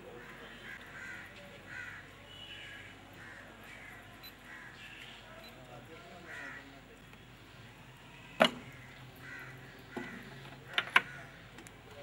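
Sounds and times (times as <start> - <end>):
bird calls: 0.1 - 5.6.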